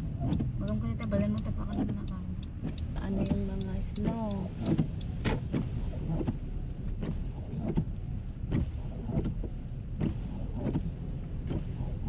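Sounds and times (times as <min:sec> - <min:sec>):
car driving rumble: 0:00.0 - 0:12.0
windshield wipers swishing: 0:00.0 - 0:12.0.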